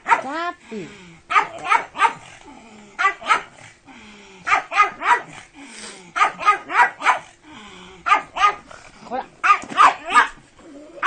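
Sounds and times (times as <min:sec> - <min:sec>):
dog barking high-pitched yaps: 0:00.0 - 0:00.3, 0:01.3 - 0:02.2, 0:03.0 - 0:03.5, 0:04.5 - 0:05.3, 0:06.2 - 0:07.3, 0:08.1 - 0:08.6, 0:09.4 - 0:10.4.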